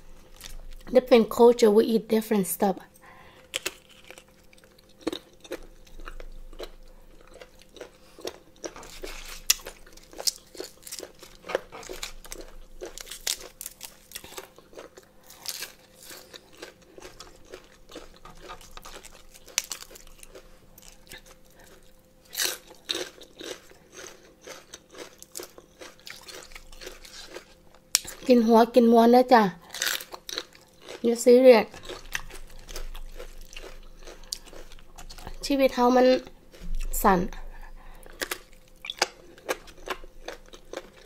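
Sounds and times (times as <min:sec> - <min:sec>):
chewing crunchy cartilage: 0:03.4 - 0:28.3, 0:29.6 - 0:35.4, 0:36.1 - 0:41.0
biting crisp raw cabbage: 0:29.7 - 0:31.0.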